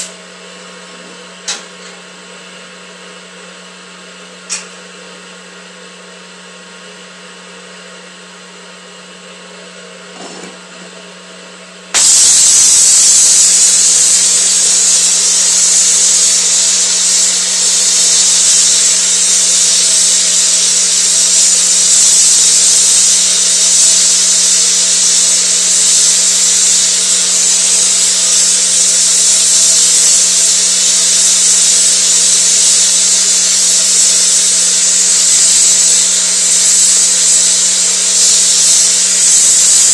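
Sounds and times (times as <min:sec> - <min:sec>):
brazing torch hissing: 0:11.9 - 0:39.9.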